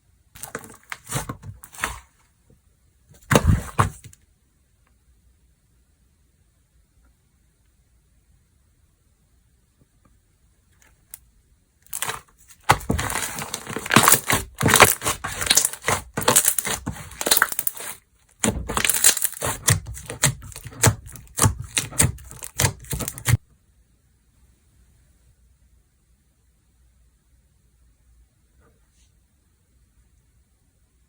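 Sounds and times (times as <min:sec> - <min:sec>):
slime squeezed by hand crackling: 0:12.0 - 0:23.4.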